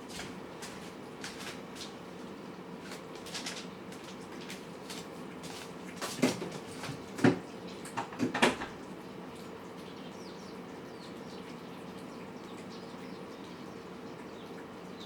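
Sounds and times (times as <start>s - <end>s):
cats eating: 0.0s - 15.0s.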